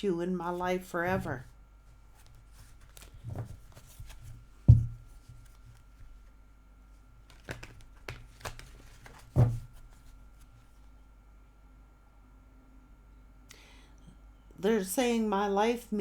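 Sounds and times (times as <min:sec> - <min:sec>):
cards rustling and clicking: 0:02.2 - 0:04.4, 0:07.2 - 0:10.5
thumps on table: 0:04.7 - 0:05.0.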